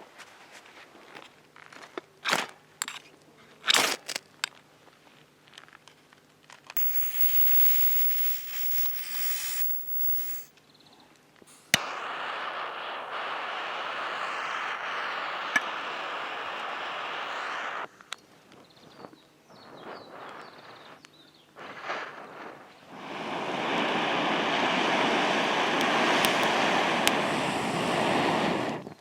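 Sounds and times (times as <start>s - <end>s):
crackles and clicks of handling: 5.4s - 10.6s
meat sizzling on grill: 6.8s - 10.5s.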